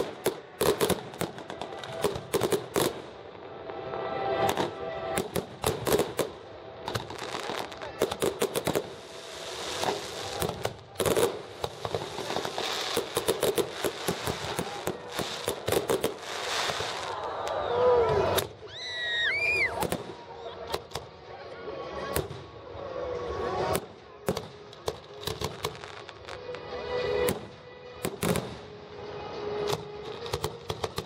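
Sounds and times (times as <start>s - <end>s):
fireworks crackling bangs: 0.0s - 3.8s, 4.4s - 17.4s, 23.7s - 26.4s
fireworks hiss: 6.9s - 17.2s
whistling firework: 6.9s - 20.2s.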